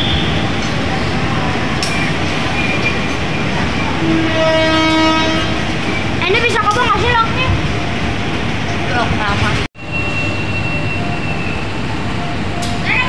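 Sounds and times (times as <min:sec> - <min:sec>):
train wheels rumbling on rail: 0:00.0 - 0:13.0
train horn: 0:04.0 - 0:05.6.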